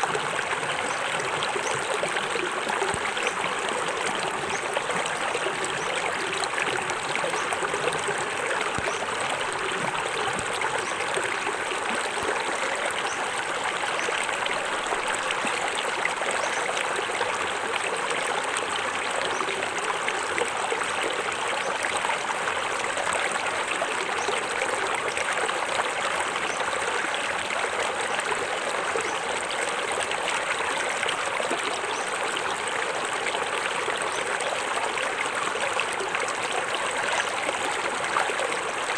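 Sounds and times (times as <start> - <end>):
water splashing over rocks: 0.0 - 21.4.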